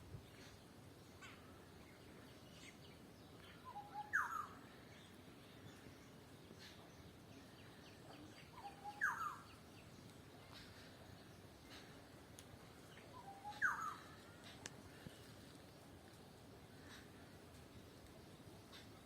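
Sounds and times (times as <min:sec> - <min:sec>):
faint bird chirps: 0:00.3 - 0:15.7
bird calling: 0:03.6 - 0:04.6, 0:08.4 - 0:09.6, 0:12.9 - 0:15.2.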